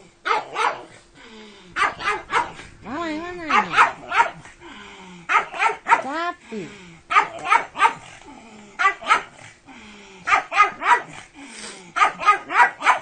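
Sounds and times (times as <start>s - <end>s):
dog barking sharply: 1.8s - 2.6s, 3.5s - 4.5s, 5.3s - 6.1s, 7.1s - 8.1s, 8.8s - 9.3s, 10.3s - 11.2s, 12.0s - 13.0s.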